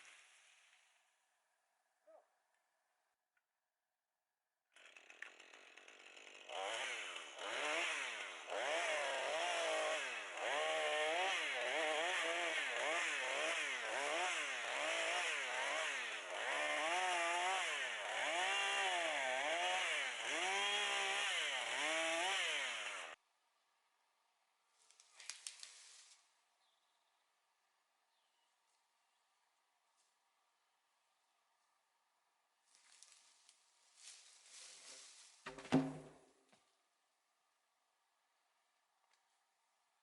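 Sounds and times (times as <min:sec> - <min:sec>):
chainsaw cutting wood: 0:00.0 - 0:01.0, 0:04.8 - 0:23.2.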